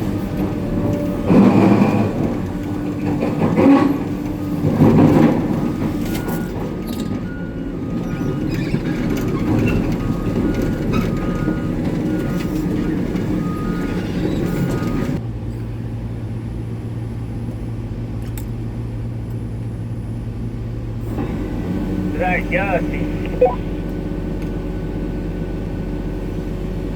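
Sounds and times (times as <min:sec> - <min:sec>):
excavator diesel engine working: 0:20.7 - 0:26.9
two-tone back-up alarm beeping: 0:22.3 - 0:23.6.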